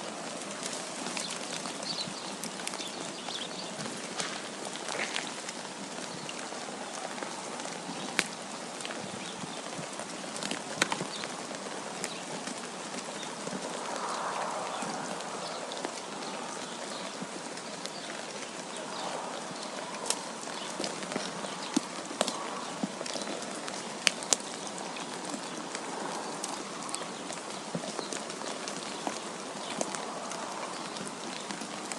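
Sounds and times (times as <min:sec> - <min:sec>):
wind noise: 0:03.0 - 0:23.0.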